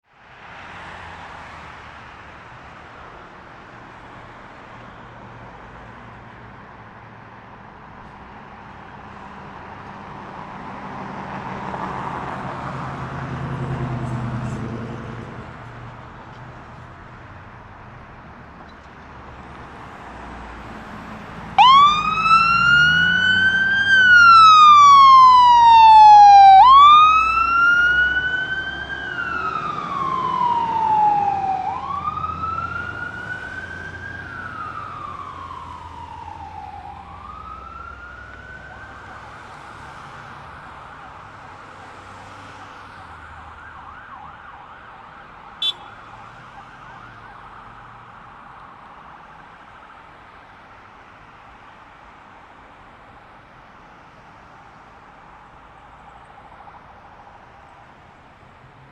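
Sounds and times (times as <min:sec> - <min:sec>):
fire engine siren wailing: 0:20.6 - 0:50.5.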